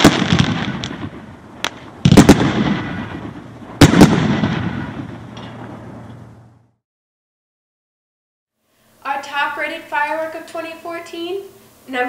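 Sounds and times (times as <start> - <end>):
booming firework breaks: 0.0 - 6.8
firework report: 0.0 - 6.8.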